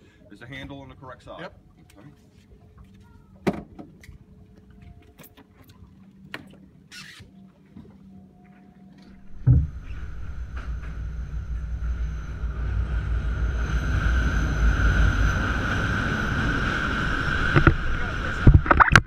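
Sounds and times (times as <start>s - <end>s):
train rumbling over bridge: 9.2s - 18.6s.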